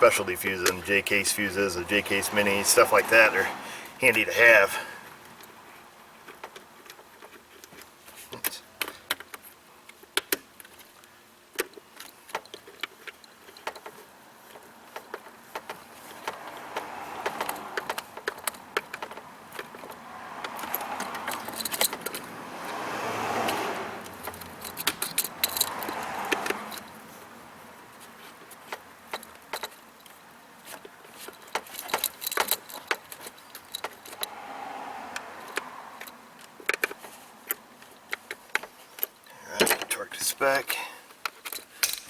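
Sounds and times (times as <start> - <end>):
metallic clicks of hand tools: 11.6 - 22.3, 23.4 - 27.0, 40.7 - 42.0.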